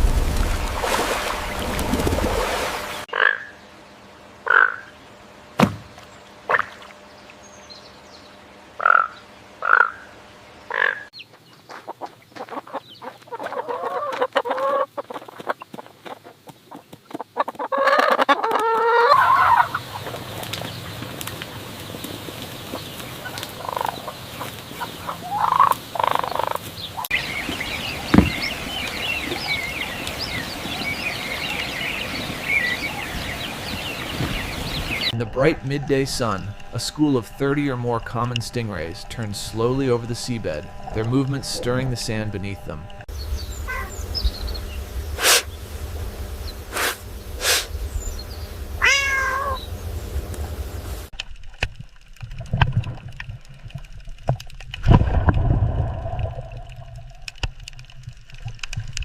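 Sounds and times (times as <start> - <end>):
gobble-like warbling calls: 3.1 - 3.6, 4.4 - 4.9, 6.5 - 6.8, 8.8 - 10.1, 10.7 - 11.1, 11.9 - 16.3, 17.2 - 20.2, 22.7 - 28.1, 43.6 - 44.0
small birds chirping: 6.0 - 35.2, 35.9 - 51.1
fowl clucking: 11.8 - 16.3, 17.2 - 20.2, 22.7 - 27.4.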